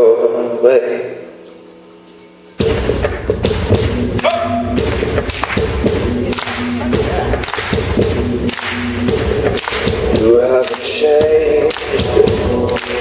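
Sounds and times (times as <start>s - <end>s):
drum hits: 2.6s - 13.0s.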